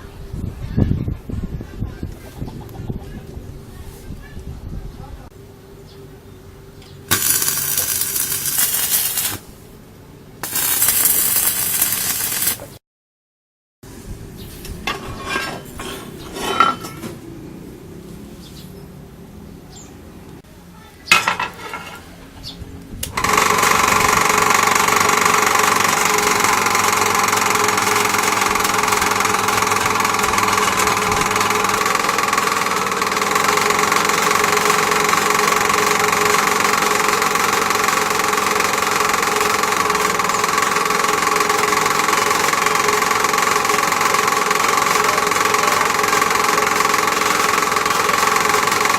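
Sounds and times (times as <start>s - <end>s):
lathe motor whining: 7.1s - 9.4s, 10.4s - 12.6s, 23.1s - 48.9s.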